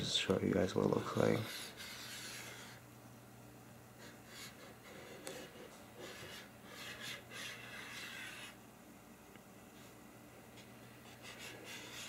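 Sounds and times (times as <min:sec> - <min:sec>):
soft rubbing and scraping: 0:00.8 - 0:02.8, 0:05.0 - 0:08.6.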